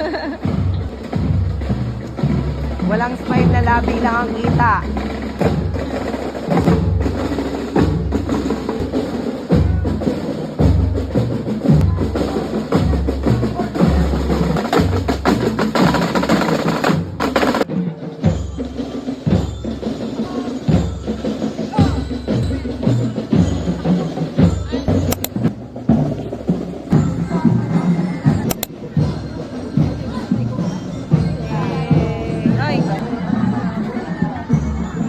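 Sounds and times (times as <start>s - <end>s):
drum-heavy music: 0.0s - 35.0s
woodblock-like clicks: 25.1s - 25.4s, 28.4s - 28.7s.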